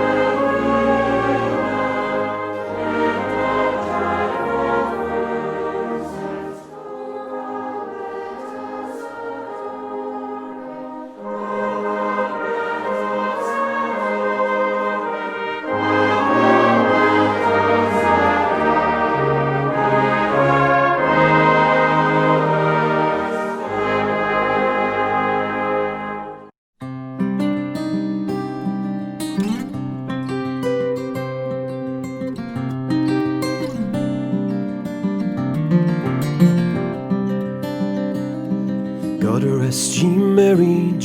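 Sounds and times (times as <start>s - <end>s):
brass music sustained chords: 0.0s - 26.5s.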